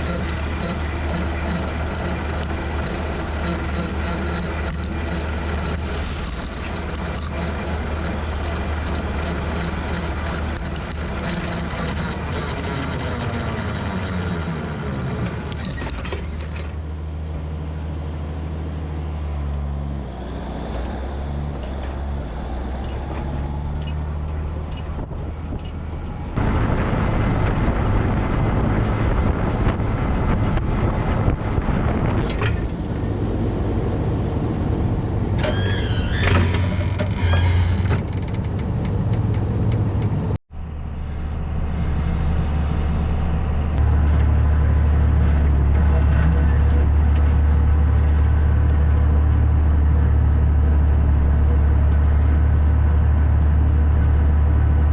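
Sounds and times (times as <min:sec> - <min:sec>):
falling whine: 0:00.0 - 0:16.7, 0:40.6 - 0:54.9
tractor engine running rotary cutter: 0:00.0 - 0:54.9.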